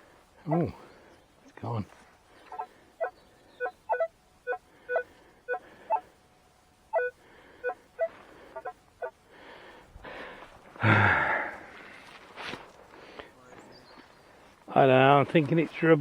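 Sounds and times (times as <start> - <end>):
metal detector beeps: 2.5 - 6.0, 6.9 - 9.1.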